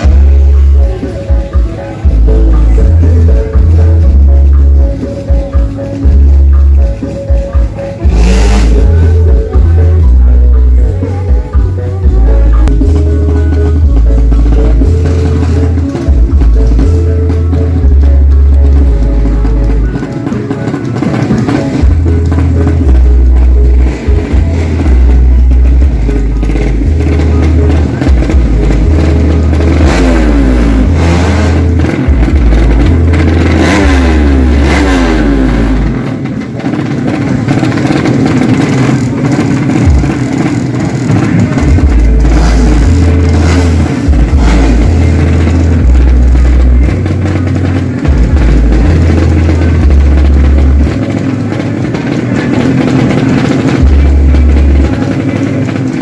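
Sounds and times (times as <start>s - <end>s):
motorcycle engines revving: 0.0s - 56.0s
music bass line thudding: 0.0s - 56.0s.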